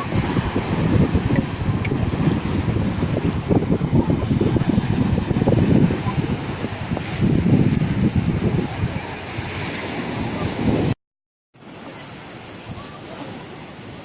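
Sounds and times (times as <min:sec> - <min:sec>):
surf washing on shore: 0:00.0 - 0:11.0, 0:11.6 - 0:14.0
wind buffeting microphone: 0:00.0 - 0:11.0.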